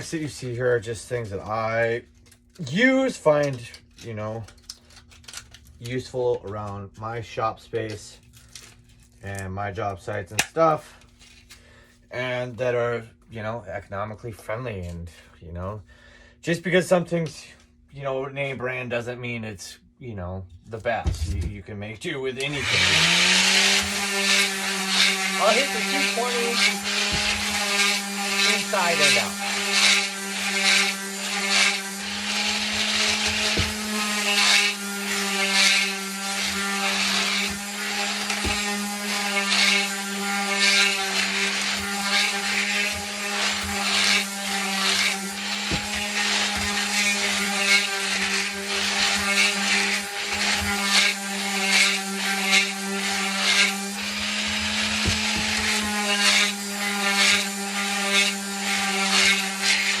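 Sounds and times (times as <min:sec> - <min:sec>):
electric sander on wood: 0:22.4 - 1:00.0.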